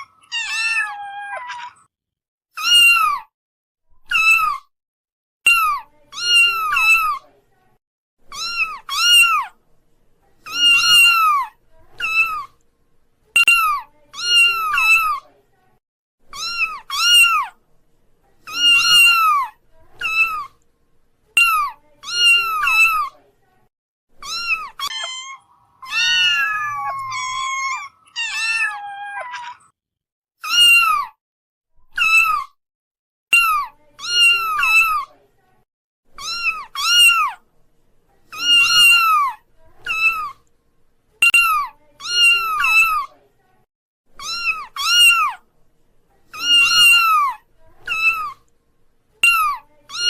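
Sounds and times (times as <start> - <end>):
kittens mewing: 0.0 - 1.9, 5.5 - 7.2, 8.3 - 9.6, 10.5 - 12.6, 13.4 - 15.2, 16.3 - 17.6, 18.5 - 20.6, 24.2 - 29.7, 30.4 - 31.2, 36.2 - 37.4, 38.3 - 40.4, 44.2 - 45.4, 46.3 - 48.4.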